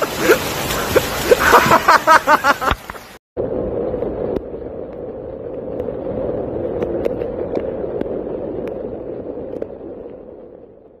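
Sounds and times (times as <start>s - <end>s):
rushing rain and floodwater: 0.0s - 3.2s
sharp crackles: 2.7s - 11.0s.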